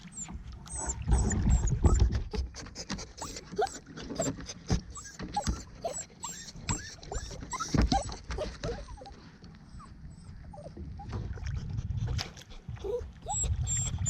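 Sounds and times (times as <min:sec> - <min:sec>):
dog whining: 0:00.1 - 0:02.2, 0:03.2 - 0:11.1, 0:12.8 - 0:14.0.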